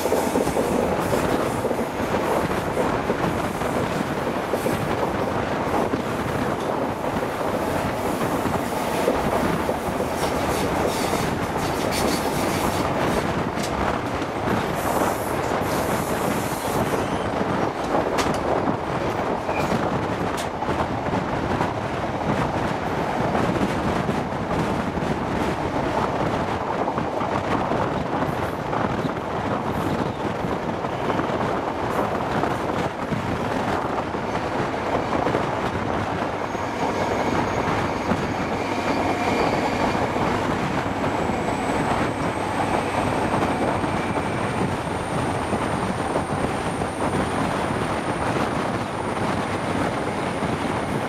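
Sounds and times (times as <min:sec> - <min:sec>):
train wheel and air rush: 0:00.0 - 0:20.9, 0:31.4 - 0:51.0.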